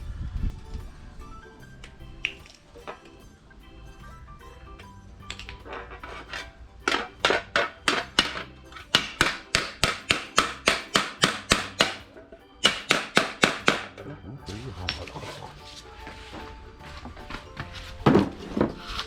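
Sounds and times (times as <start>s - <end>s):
hammer blows on steel sheet: 5.6s - 14.0s.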